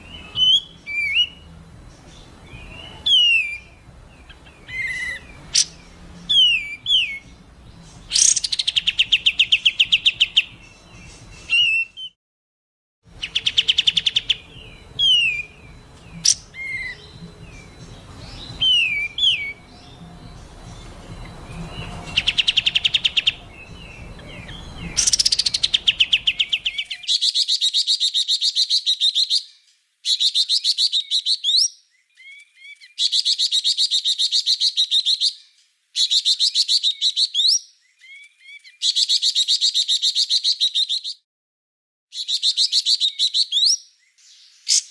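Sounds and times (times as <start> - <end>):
songbird whistled notes: 0.0 - 12.2, 13.2 - 29.5
harsh rattling bird trills: 3.0 - 7.3, 7.9 - 10.5, 17.7 - 27.3.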